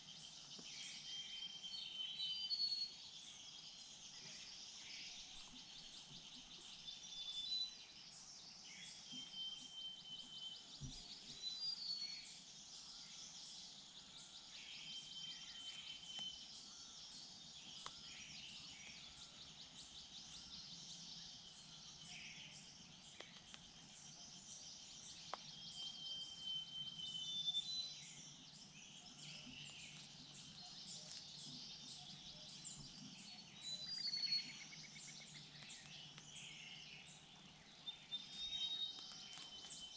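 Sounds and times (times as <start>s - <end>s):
high whistled bird calls: 25.6s - 28.0s.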